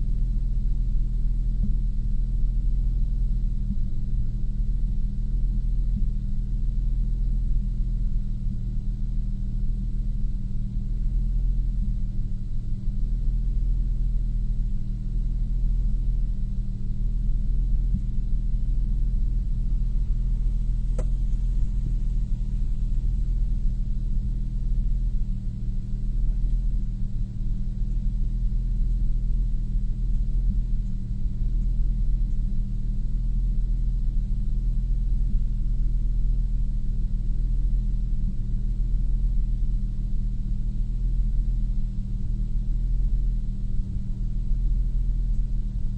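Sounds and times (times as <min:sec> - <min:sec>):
car engine running: 0:00.0 - 0:45.9
sharp click: 0:20.9 - 0:21.3.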